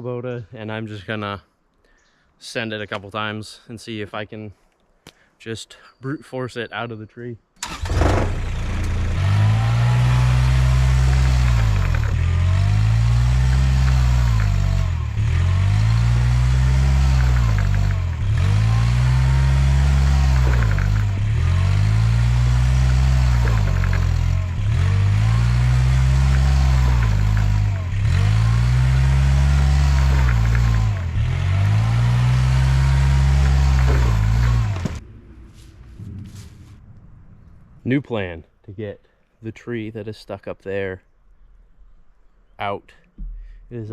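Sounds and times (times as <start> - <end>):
tractor engine revving: 7.6 - 35.1.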